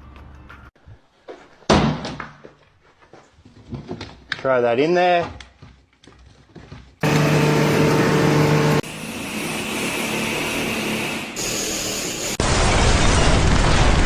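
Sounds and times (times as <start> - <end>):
machinery hum with tones: 7.0 - 9.3.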